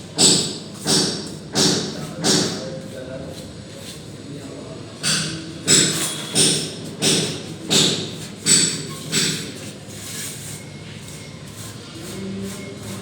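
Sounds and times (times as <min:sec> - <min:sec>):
trowel strokes on plaster: 0:09.5 - 0:13.0.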